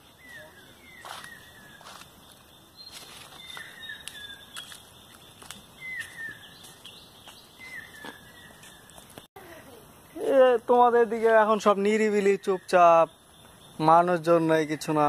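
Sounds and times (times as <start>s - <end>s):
footsteps on paved path: 0.0s - 9.3s
birds whistling downward notes: 0.2s - 9.3s.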